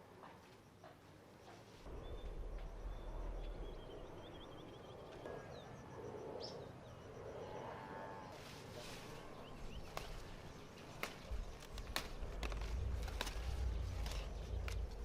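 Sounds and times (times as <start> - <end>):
low rumble: 1.9 - 7.5, 11.3 - 15.0
small birds chirping: 8.3 - 15.0.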